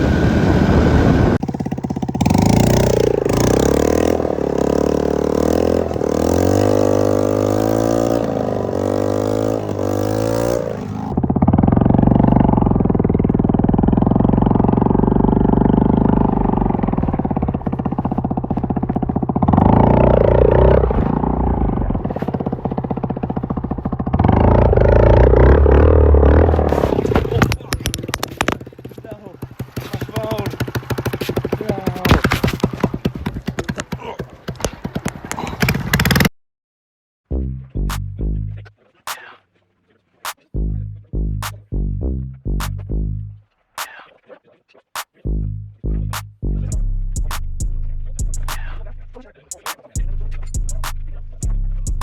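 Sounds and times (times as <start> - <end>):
pit bike engine revving: 0.0 - 27.4, 45.2 - 52.0.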